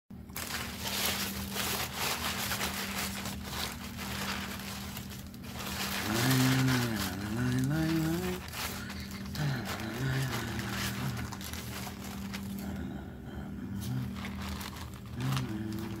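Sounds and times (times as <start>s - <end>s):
man humming: 5.8s - 16.0s.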